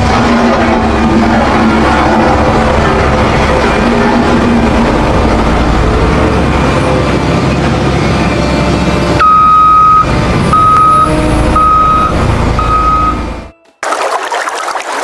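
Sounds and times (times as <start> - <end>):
vehicle engine running: 0.0 - 13.5
reversing beeper: 9.1 - 13.6.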